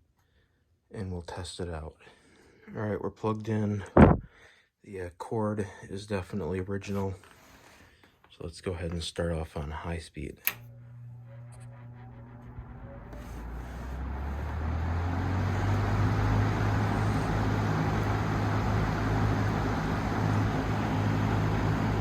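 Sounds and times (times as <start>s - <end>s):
fan switch click: 10.4s - 10.7s
box fan whooshing: 11.4s - 22.0s.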